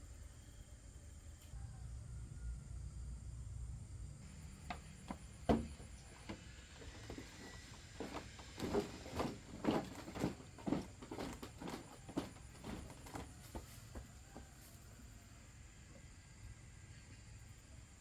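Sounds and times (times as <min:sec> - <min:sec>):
short thuds: 0:04.2 - 0:14.2.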